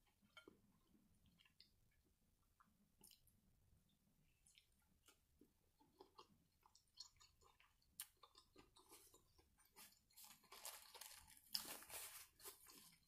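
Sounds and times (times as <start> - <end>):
chewing with wet mouth clicks: 2.6 - 3.3, 5.8 - 9.8
paper napkin rustling: 10.6 - 12.7.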